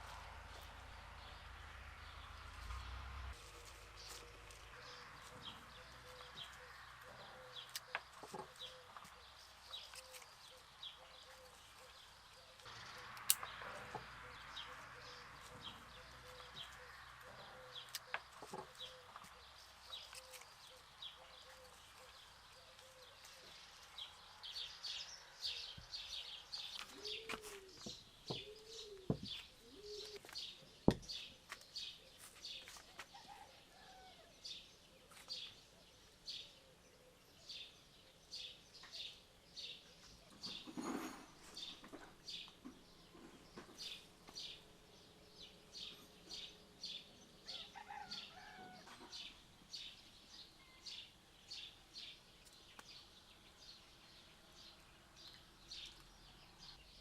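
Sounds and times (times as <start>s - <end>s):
low arching calls: 0.0s - 34.2s.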